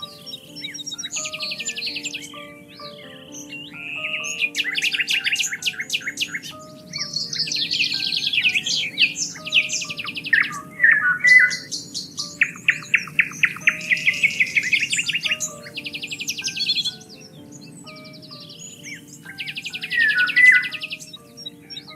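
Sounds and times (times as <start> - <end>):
soft slow music: 0.0 - 21.9
songbirds singing: 0.0 - 21.9.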